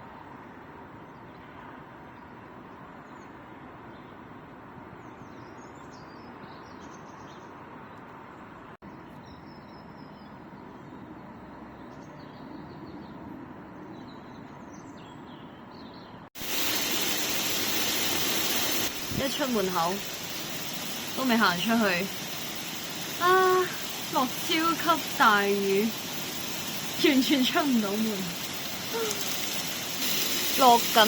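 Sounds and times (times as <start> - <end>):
outdoor background noise: 0.0 - 31.0
birds chirping: 15.9 - 31.0.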